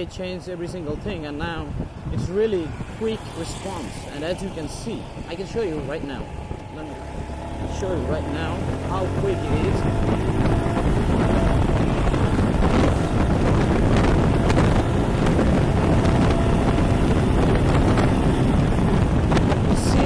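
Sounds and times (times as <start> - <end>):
wind buffeting microphone: 0.0 - 20.0
motorcycle engine accelerating: 2.6 - 20.0.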